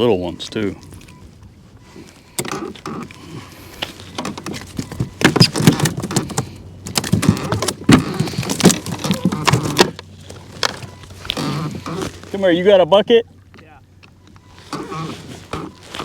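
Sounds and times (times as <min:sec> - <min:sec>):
fish flopping on a kayak: 0:00.8 - 0:12.4.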